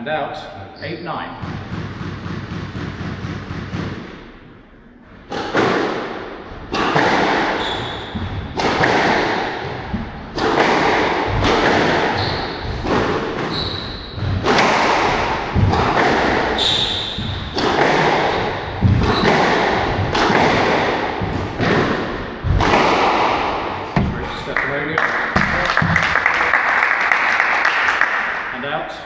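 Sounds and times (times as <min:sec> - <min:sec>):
squash ball cracking off rackets: 0:01.4 - 0:26.5
shoe squeaks on court floor: 0:06.7 - 0:09.0, 0:11.6 - 0:14.6, 0:16.0 - 0:17.6.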